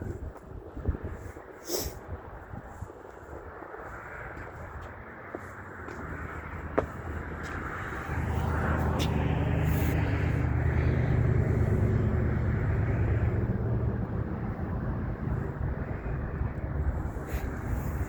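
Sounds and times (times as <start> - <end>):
large vehicle rumbling: 4.2 - 18.0.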